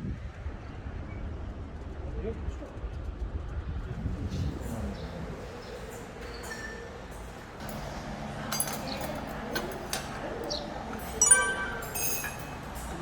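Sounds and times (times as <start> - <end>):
dishes and utensils clinking: 6.2 - 7.9, 8.5 - 10.2, 10.9 - 13.0.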